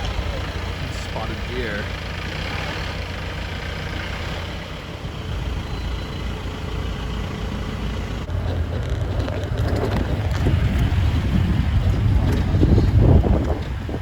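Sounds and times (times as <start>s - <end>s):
engine and road rumble: 0.0s - 14.0s
wind buffeting microphone: 8.2s - 14.0s.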